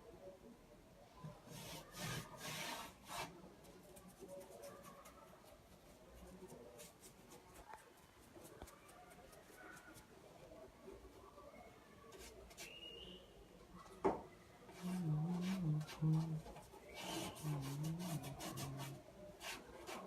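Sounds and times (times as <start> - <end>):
rubbing strokes on hard surface: 1.4 - 10.1, 12.1 - 12.8, 14.7 - 20.0.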